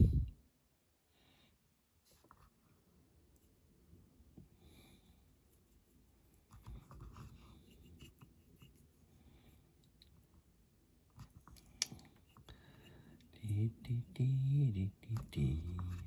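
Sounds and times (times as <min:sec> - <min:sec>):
paintbrush brushing and scratching: 0:05.2 - 0:09.6, 0:15.2 - 0:16.0.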